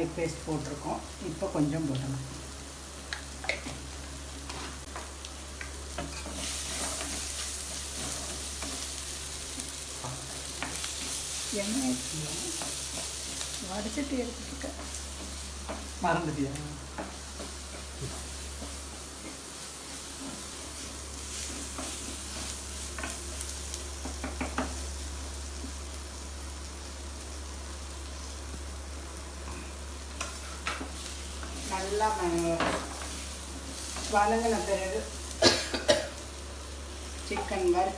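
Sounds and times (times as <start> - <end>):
masala sizzling in oil: 0.0 - 37.9
spoon stirring and scraping pan: 3.1 - 16.2, 16.8 - 24.9, 29.4 - 35.1.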